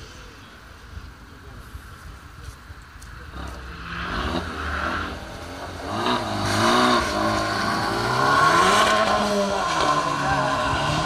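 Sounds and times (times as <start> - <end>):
car engine revving: 3.2 - 11.0.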